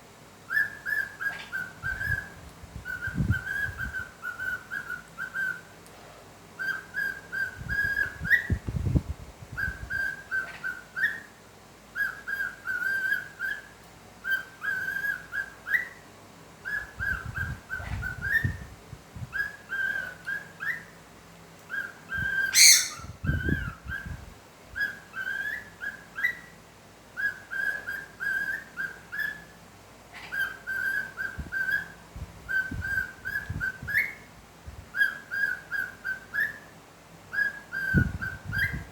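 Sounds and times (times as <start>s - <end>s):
parrot whistling a tune: 21.7s - 23.7s, 37.3s - 38.9s.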